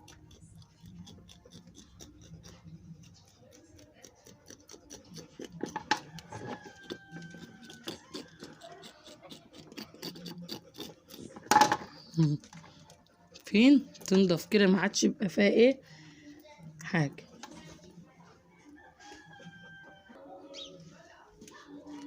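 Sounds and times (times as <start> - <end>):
knife scraping duck skin: 0.0 - 12.1.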